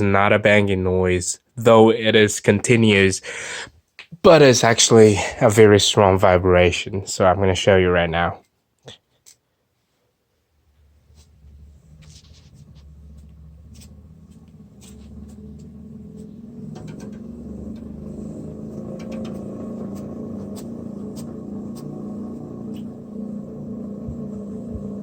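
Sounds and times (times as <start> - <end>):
exercise bike flywheel drone: 10.8 - 25.0.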